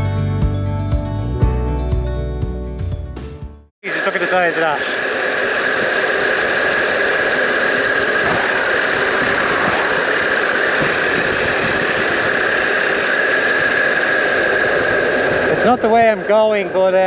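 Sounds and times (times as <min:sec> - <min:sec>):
constant rush of noise: 0:03.8 - 0:17.0.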